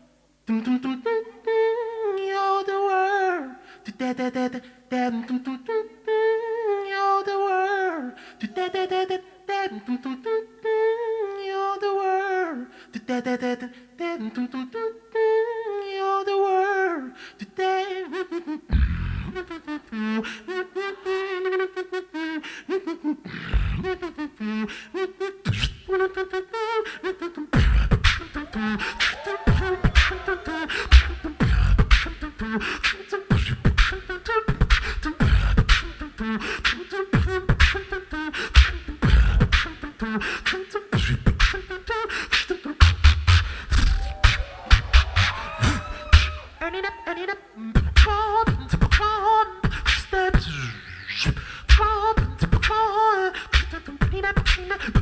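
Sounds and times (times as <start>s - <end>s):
hummed vocal melody: 0.0s - 55.0s
beatboxing mouth percussion: 23.2s - 24.2s, 25.3s - 26.4s, 27.0s - 46.6s, 47.8s - 55.0s
kick and snare beat with bass: 27.6s - 32.2s, 42.8s - 46.6s, 47.8s - 49.1s, 51.7s - 52.8s.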